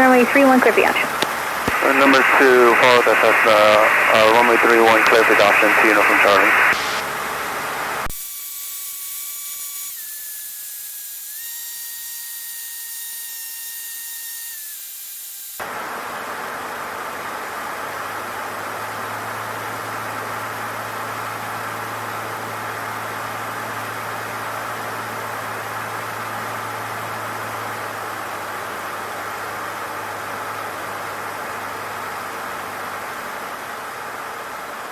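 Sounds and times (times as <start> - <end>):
headset intercom hiss: 0.0 - 7.1
faint steady tones: 0.0 - 8.1
low steady hum: 0.0 - 8.1.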